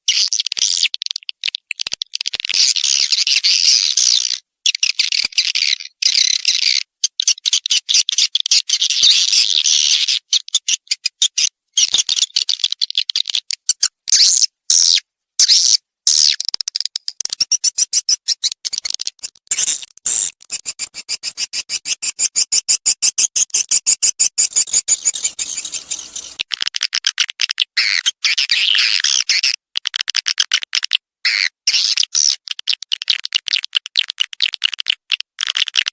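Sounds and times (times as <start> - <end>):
swiftlets twittering and clicking: 23.3 - 26.6.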